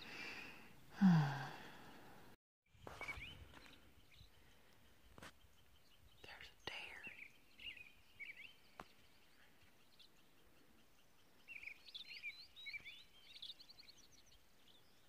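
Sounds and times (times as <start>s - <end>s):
songbird chirping: 0.0s - 15.0s.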